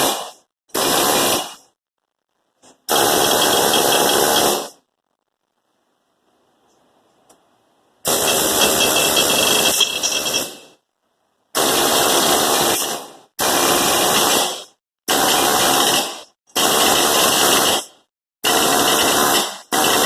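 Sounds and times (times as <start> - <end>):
pneumatic air hammer on metal: 0.0 - 1.7, 2.8 - 4.8, 8.1 - 10.8, 11.6 - 20.0.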